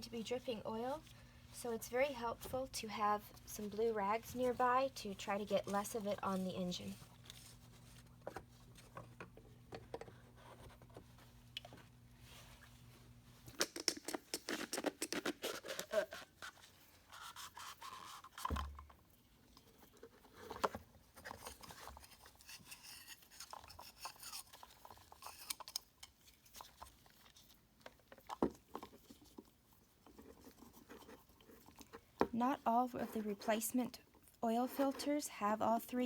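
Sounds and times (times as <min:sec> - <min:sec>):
scraping and rustling of rags: 0:02.3 - 0:09.2.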